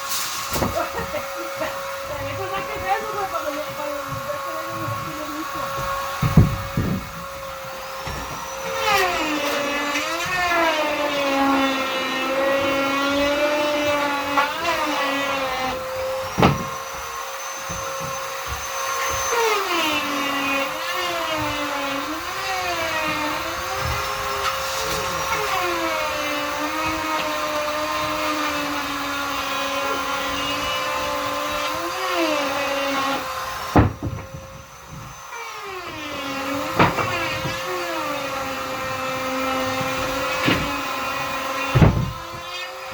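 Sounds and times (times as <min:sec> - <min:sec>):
vacuum cleaner whine: 0:00.0 - 0:42.9
sharp knocks: 0:04.2 - 0:07.4, 0:16.3 - 0:19.4, 0:33.6 - 0:35.2, 0:35.8 - 0:37.6, 0:39.2 - 0:42.5.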